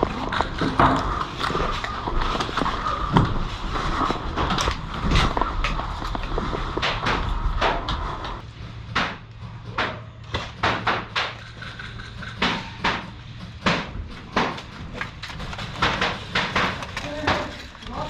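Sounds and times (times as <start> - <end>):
sharp clacks and knocks: 4.0 - 17.9.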